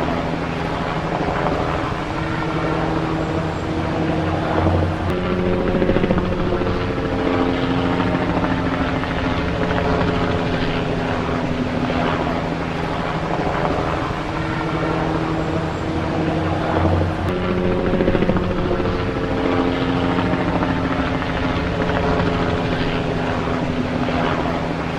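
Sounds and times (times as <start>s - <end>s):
helicopter engine hum: 0.0s - 24.9s
helicopter rotor chop: 0.0s - 24.9s.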